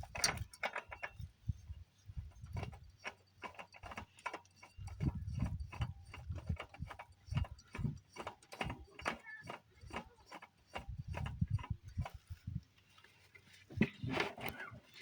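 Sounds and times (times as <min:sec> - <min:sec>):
tools and metal parts clicking: 0:00.0 - 0:01.6, 0:02.4 - 0:12.5.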